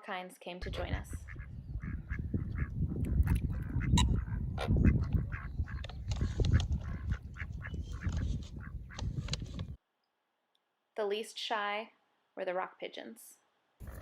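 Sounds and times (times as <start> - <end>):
ducks quacking: 0.7 - 9.2.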